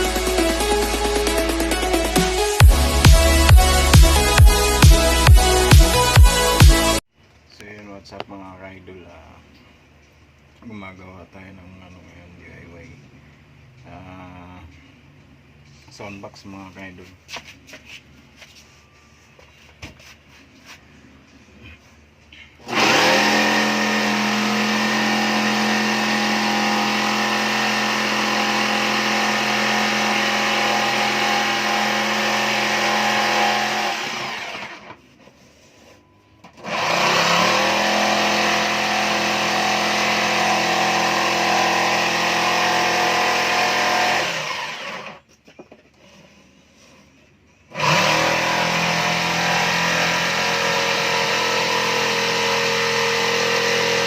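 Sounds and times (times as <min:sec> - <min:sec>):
power tool electric motor: 0:22.6 - 0:35.0, 0:36.6 - 0:45.2, 0:47.7 - 0:54.0.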